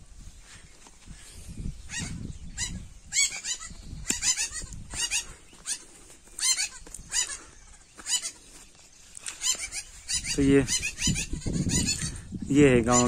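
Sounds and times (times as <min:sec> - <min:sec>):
wind on microphone: 0:00.0 - 0:05.5, 0:09.7 - 0:13.0
bird high-pitched calls: 0:01.1 - 0:13.0.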